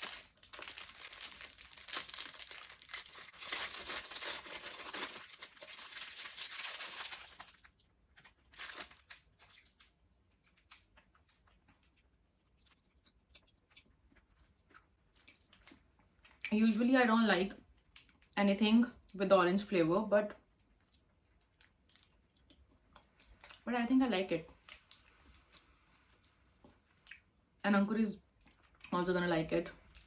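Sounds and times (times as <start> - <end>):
wrapper tearing and crinkling: 0.0 - 9.9.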